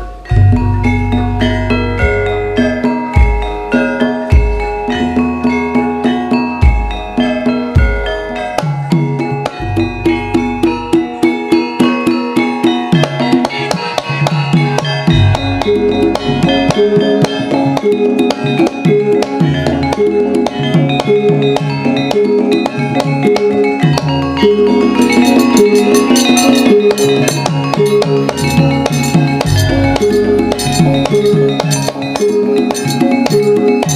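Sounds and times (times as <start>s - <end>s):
drum strokes: 0.0s - 33.9s
gamelan music over sound system: 0.0s - 33.9s.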